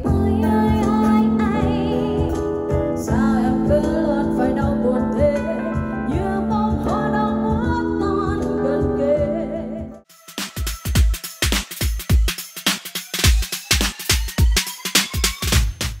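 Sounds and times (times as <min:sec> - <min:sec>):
person singing with vibrato: 0:03.0 - 0:10.0.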